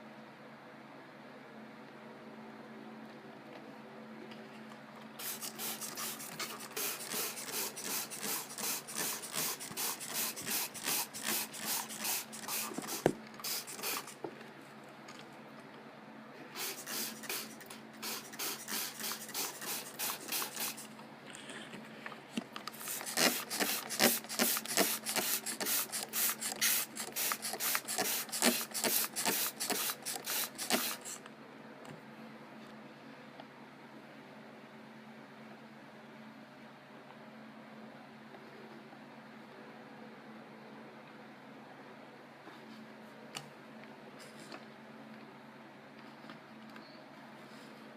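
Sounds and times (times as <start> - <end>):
steady machine hum: 0.0 - 36.4.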